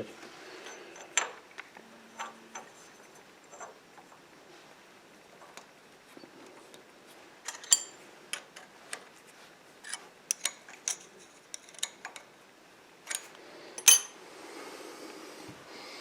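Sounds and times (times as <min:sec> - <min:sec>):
metal tool parts clicking and clinking: 0:07.5 - 0:08.0, 0:13.1 - 0:14.2.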